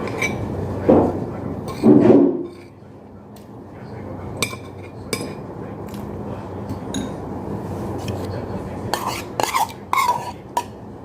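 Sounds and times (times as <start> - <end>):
cutlery clinking against dishes: 0.0 - 0.4, 1.7 - 2.8, 4.4 - 6.1, 6.7 - 7.2, 8.9 - 10.8
steady low hum: 0.0 - 11.0.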